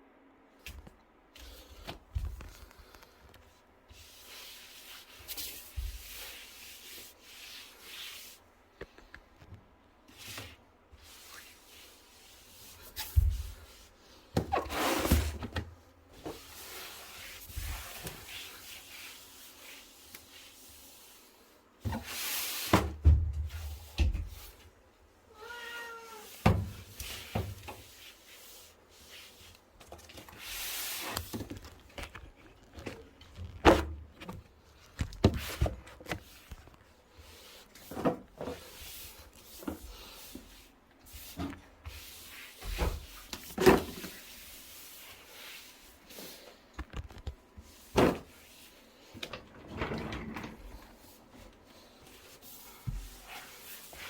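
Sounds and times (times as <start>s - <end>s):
cat meowing: 25.3s - 26.4s.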